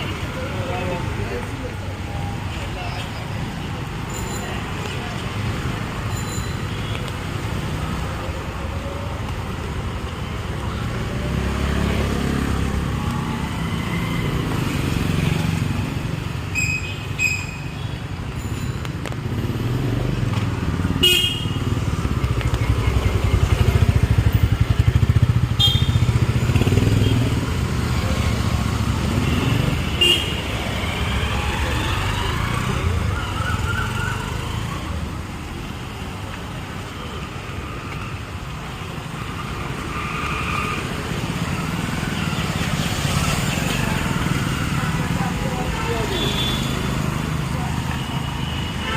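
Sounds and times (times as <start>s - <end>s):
motorcycles and cars passing: 0.0s - 48.9s
vehicle horn toots: 25.6s - 26.0s.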